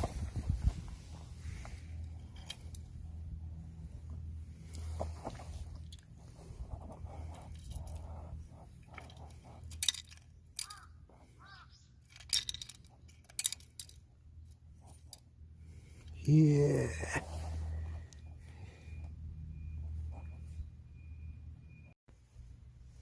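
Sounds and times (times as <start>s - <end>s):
steady low hum: 0.0s - 23.0s
metal tools clinking: 1.9s - 3.1s, 7.1s - 10.9s, 12.0s - 15.3s.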